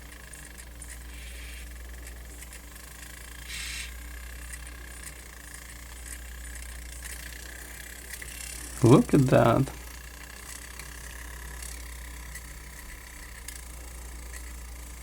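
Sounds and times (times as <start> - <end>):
disc mechanism ticking and whirring: 0.0 - 15.0
low steady hum: 8.5 - 10.0.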